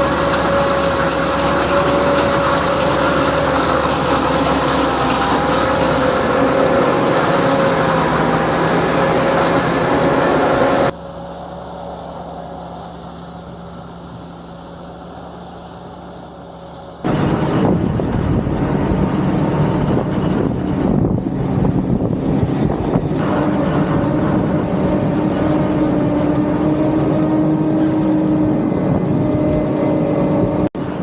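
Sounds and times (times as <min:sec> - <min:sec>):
distant machine sound: 0:00.0 - 0:14.2
harvesting machinery running: 0:00.0 - 0:31.0.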